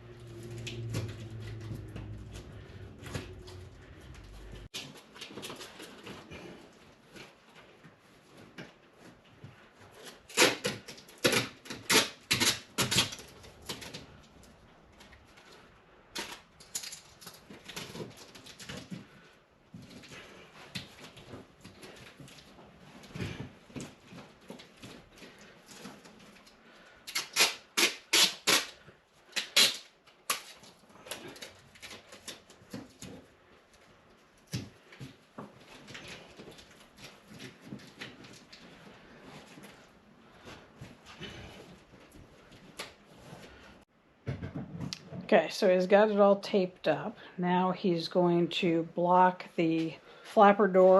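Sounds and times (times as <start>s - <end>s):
tape crinkling on metal duct: 10.0s - 19.3s, 23.8s - 33.2s.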